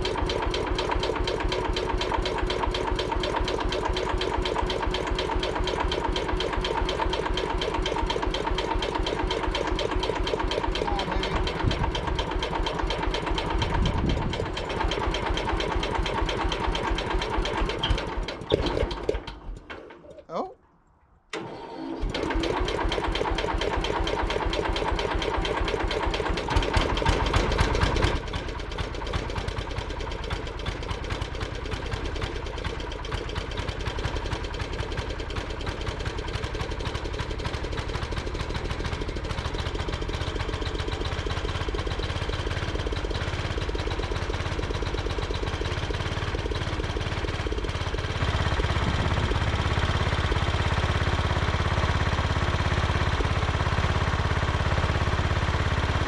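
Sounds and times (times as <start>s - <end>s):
small engine starting and running: 0.0s - 20.1s, 21.3s - 56.0s.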